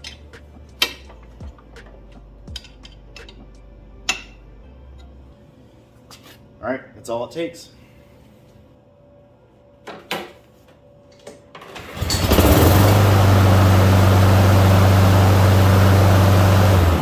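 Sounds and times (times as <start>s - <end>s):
lawn mower engine running: 11.6s - 17.0s.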